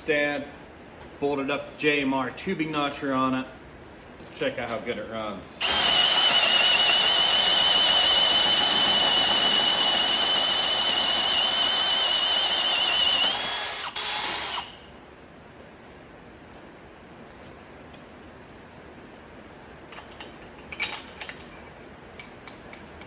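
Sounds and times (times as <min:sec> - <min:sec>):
hole saw cutting metal tubing: 0:05.6 - 0:14.8.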